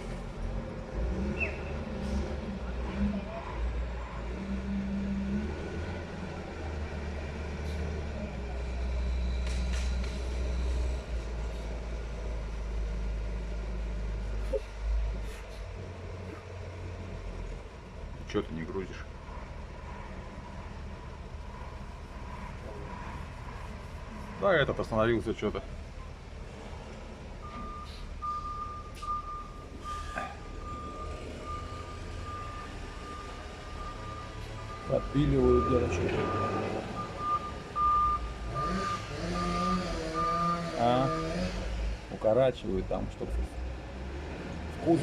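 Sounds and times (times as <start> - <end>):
heavy diesel machinery rumble: 0.0 - 45.0
reversing alarm beeping: 27.4 - 41.6.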